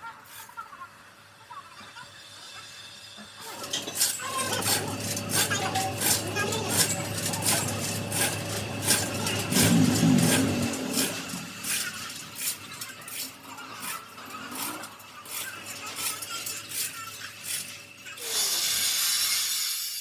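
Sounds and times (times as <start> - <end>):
machine hum: 2.3 - 18.2.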